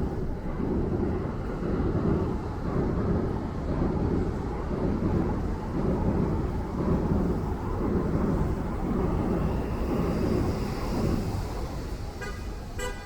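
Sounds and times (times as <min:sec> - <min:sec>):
street traffic rumble: 0:00.0 - 0:13.0
vehicle horn toot: 0:12.2 - 0:13.0.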